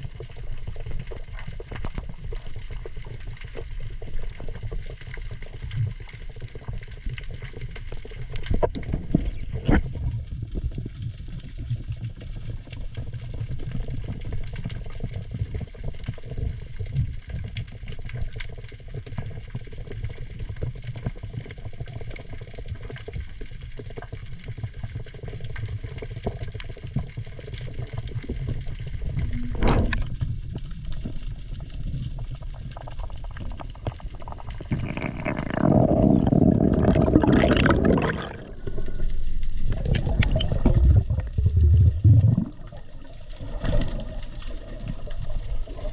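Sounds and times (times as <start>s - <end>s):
rush of water and bubbles: 0.0s - 45.9s
low underwater rumble: 27.9s - 45.9s.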